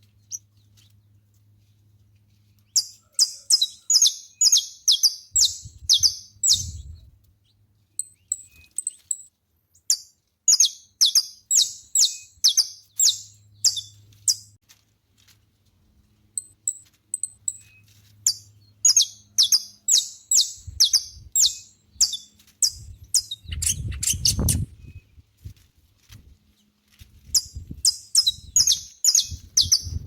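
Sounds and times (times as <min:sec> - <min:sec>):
finch singing: 0:02.7 - 0:07.1, 0:09.9 - 0:14.5, 0:17.2 - 0:25.1, 0:27.3 - 0:30.0.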